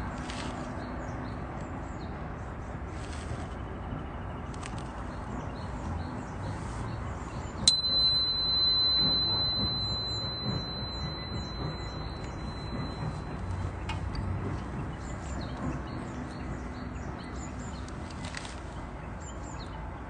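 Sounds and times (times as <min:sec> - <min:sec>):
metal chime ringing: 0:07.6 - 0:13.8.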